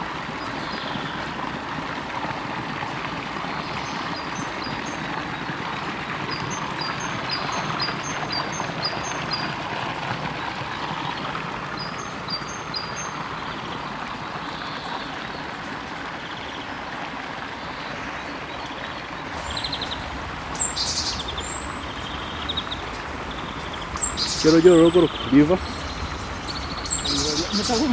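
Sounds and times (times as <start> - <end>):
stream running: 17.0 - 27.9
bird chirping: 19.3 - 27.9.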